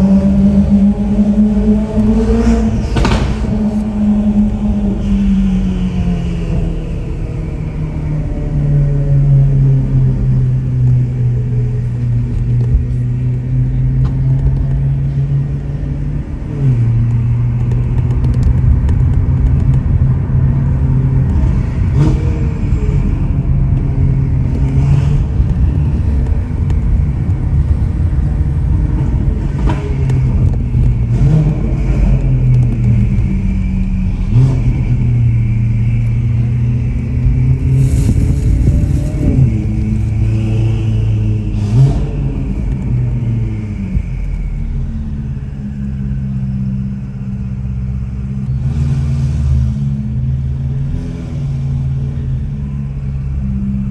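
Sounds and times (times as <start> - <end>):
car engine revving while driven: 0.0 - 53.9.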